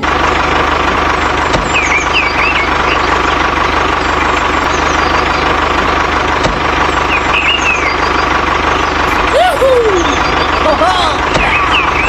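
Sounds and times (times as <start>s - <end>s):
tractor engine chugging: 0.0s - 12.0s
birdlike chirps: 1.6s - 5.7s, 6.8s - 12.0s.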